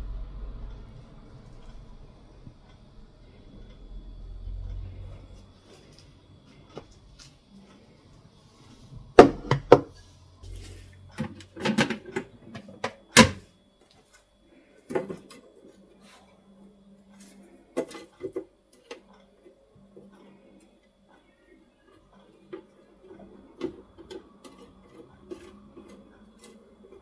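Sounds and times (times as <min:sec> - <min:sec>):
objects knocking and clattering: 0:09.2 - 0:10.0, 0:11.2 - 0:13.4.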